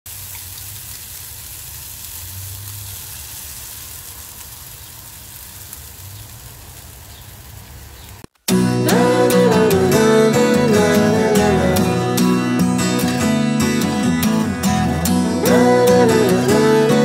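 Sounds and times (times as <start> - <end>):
vegetables sizzling in a frying pan: 0.1 - 8.4, 15.3 - 17.0
acoustic guitar music: 8.4 - 17.0.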